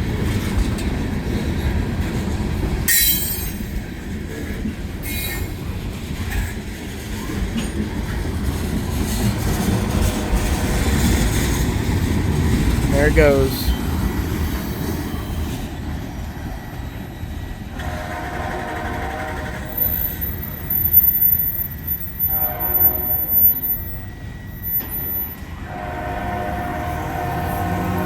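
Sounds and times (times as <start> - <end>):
low rumble of moving train: 0.0 - 28.0
locomotive air horn blasts: 17.7 - 20.0, 22.2 - 23.7, 25.6 - 28.0.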